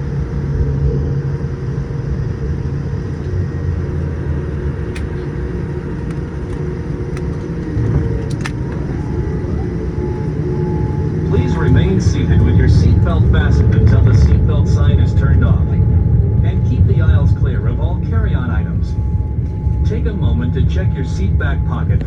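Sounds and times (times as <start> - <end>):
aircraft cabin rumble with hiss: 0.0 - 22.0.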